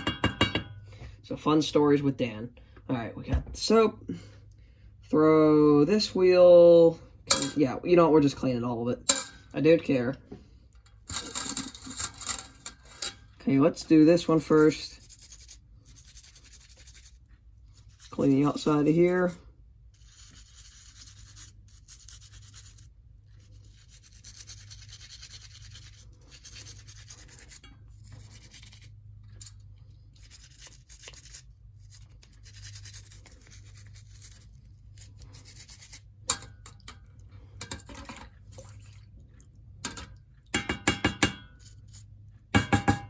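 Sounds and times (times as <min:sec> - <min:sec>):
brush scrubbing in soapy water: 0:13.4 - 0:36.2.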